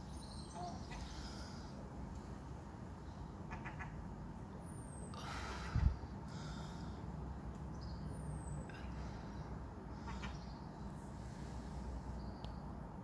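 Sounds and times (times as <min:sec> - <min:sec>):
quick bird calls: 0:09.9 - 0:10.6.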